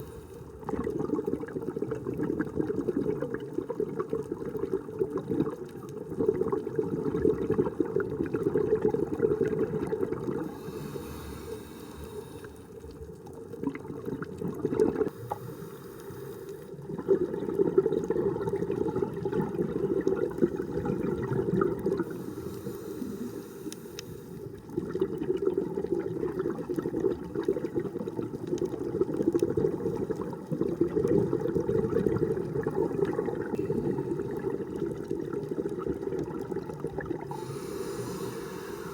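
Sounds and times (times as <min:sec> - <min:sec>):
regulator hiss on inhale: 0:00.0 - 0:00.6, 0:10.4 - 0:13.0, 0:15.1 - 0:16.9, 0:22.0 - 0:24.7, 0:33.6 - 0:34.5, 0:37.3 - 0:38.9
exhaled air bubbling: 0:00.0 - 0:38.9.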